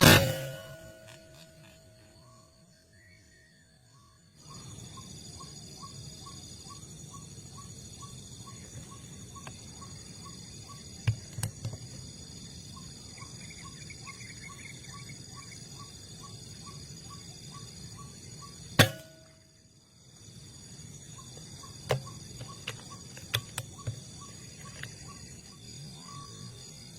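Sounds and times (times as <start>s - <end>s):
sharp loud crack: 0.0s - 1.1s
crickets trilling: 0.0s - 26.9s.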